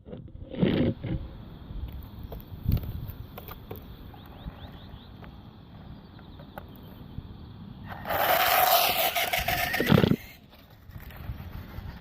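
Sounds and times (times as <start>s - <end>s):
toy truck motor whining: 7.9s - 10.4s.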